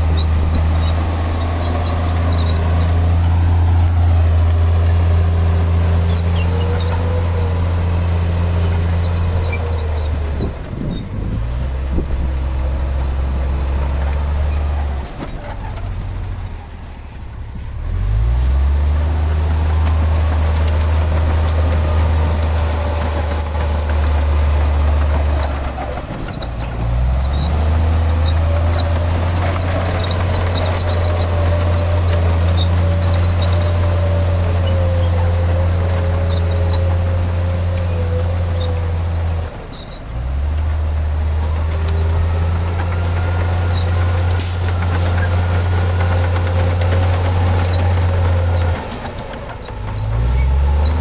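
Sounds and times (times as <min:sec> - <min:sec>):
heavy diesel engine droning: 0:00.0 - 0:51.0.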